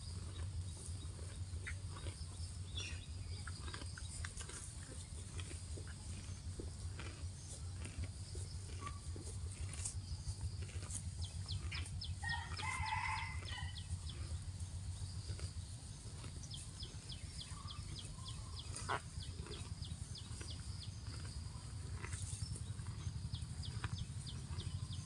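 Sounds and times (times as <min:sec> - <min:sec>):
rooster crowing: 0:12.2 - 0:13.9.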